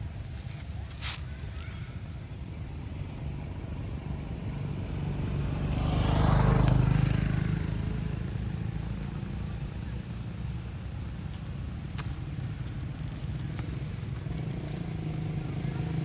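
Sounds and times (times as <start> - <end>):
vehicle engine passing by: 3.3 - 10.8, 12.5 - 16.0.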